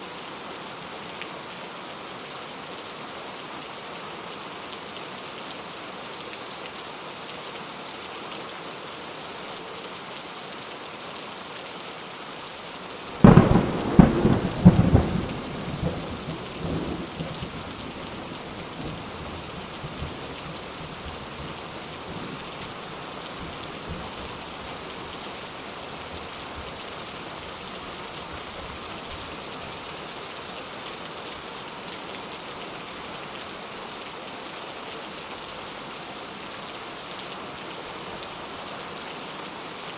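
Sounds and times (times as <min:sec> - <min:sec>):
steady rain falling: 0:00.0 - 0:39.9
thunderclap: 0:13.2 - 0:17.7.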